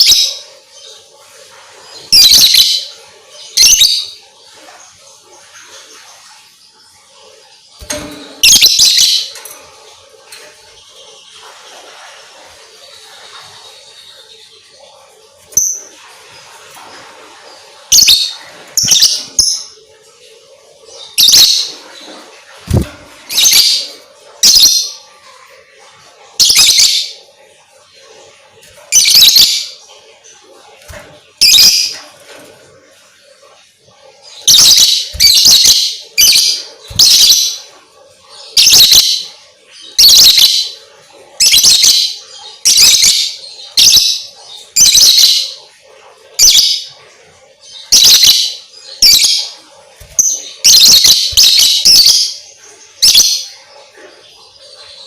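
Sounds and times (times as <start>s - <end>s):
lovebird high-pitched calls: 0.0s - 0.5s, 2.0s - 4.2s, 7.8s - 9.5s, 17.9s - 19.8s, 21.0s - 21.8s, 22.7s - 25.0s, 26.4s - 27.2s, 28.9s - 29.8s, 31.4s - 32.0s, 34.2s - 37.7s, 38.4s - 40.8s, 41.4s - 45.6s, 46.4s - 46.9s, 47.7s - 53.7s.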